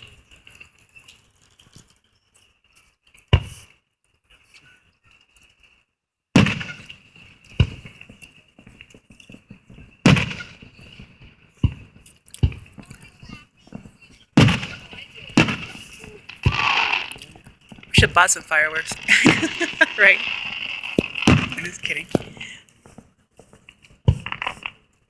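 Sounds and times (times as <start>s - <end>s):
firework shells booming: 6.4s - 7.0s, 10.0s - 11.0s, 14.4s - 22.5s.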